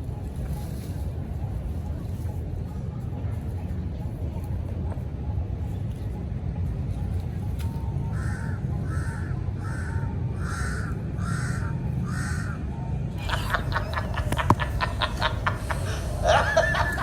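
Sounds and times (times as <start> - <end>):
crow cawing: 8.1 - 12.7.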